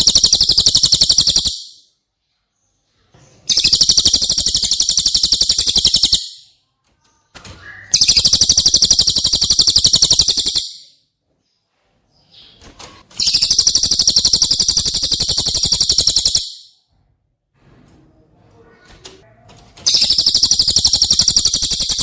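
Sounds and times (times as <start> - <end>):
songbird rapid high trill: 0.0 - 1.8, 3.5 - 6.4, 8.0 - 10.9, 13.2 - 16.7, 19.9 - 22.0.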